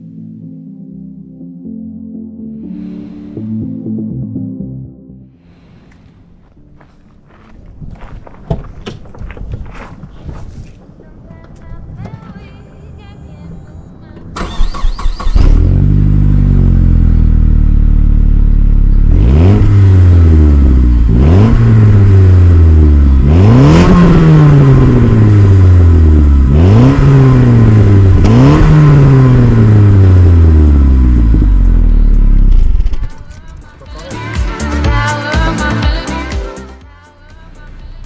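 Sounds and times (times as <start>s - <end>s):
car engine idling and revving: 14.2s - 33.8s.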